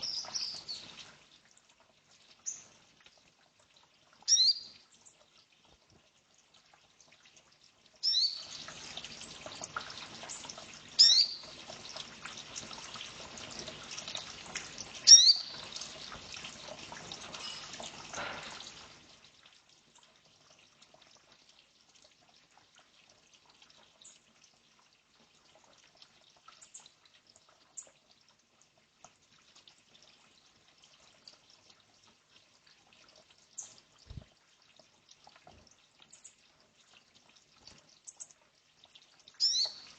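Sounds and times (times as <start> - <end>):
birds chirping: 0.0 - 0.9, 39.4 - 39.9.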